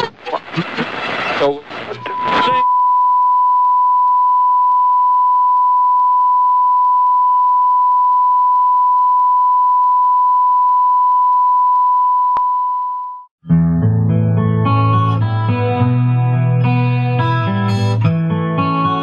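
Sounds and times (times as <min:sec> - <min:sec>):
steady electronic beep: 0:02.0 - 0:13.3.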